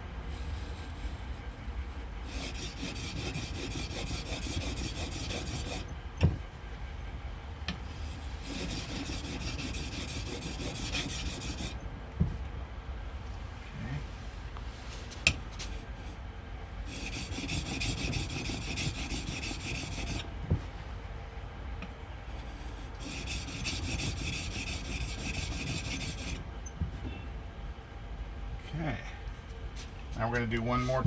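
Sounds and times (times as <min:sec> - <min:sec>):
tool scraping on a whetstone: 0:02.3 - 0:05.9, 0:07.9 - 0:11.8, 0:16.9 - 0:20.3, 0:22.4 - 0:26.4.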